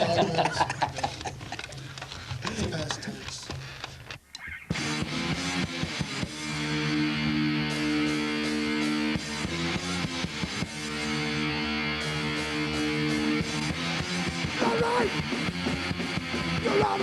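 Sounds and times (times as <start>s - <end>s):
distorted electric guitars: 4.4s - 17.0s
drums: 4.7s - 17.0s
punk rock band playing live: 4.8s - 17.0s.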